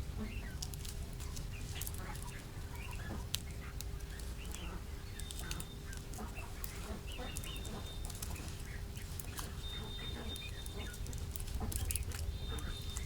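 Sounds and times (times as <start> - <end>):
faint steady hum: 0.0 - 13.0
poultry calling: 4.5 - 13.0.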